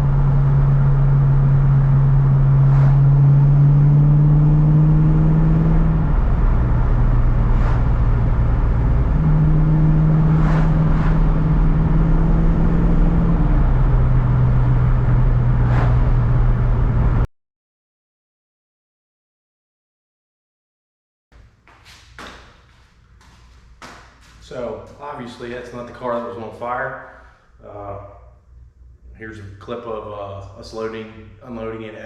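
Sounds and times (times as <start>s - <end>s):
car engine running: 0.0s - 17.3s.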